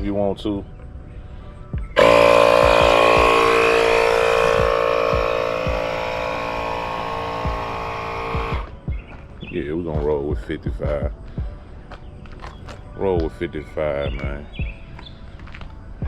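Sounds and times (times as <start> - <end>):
electric air pump whining: 2.0 - 8.8.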